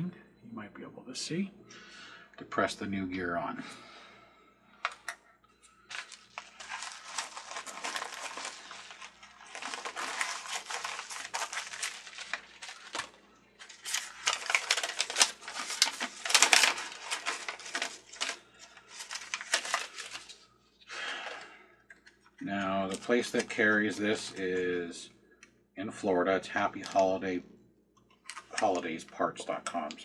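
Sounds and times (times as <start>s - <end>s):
plastic packaging crinkling: 5.9s - 20.6s, 22.8s - 24.5s, 28.2s - 29.0s.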